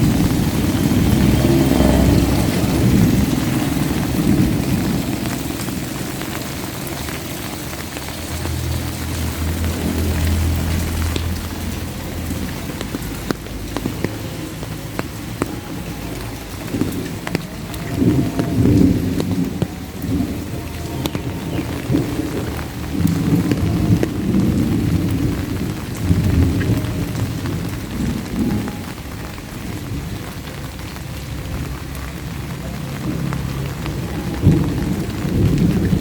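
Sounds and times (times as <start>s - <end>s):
rolling thunder: 0.0s - 7.1s, 16.5s - 30.4s, 31.3s - 36.0s
rain falling: 0.0s - 36.0s.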